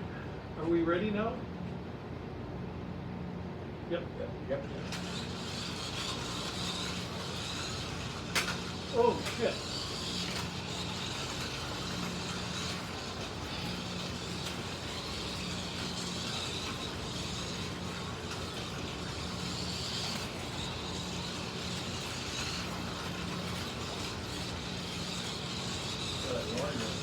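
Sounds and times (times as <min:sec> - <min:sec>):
slot cars motors whining: 0:04.5 - 0:27.0.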